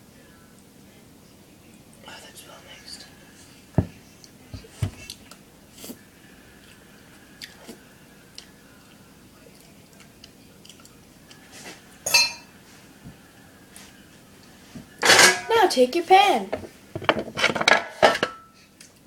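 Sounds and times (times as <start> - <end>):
utensil clinking against mixing bowl: 12.1 - 12.5.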